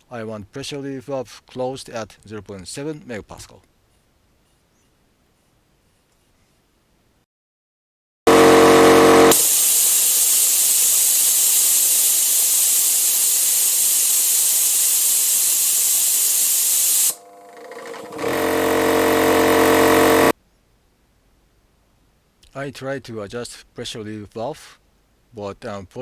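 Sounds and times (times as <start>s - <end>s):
air compressor motor running: 8.3s - 20.3s
pressure switch cutting out: 8.3s - 20.3s
loud hiss of venting air: 9.3s - 17.2s.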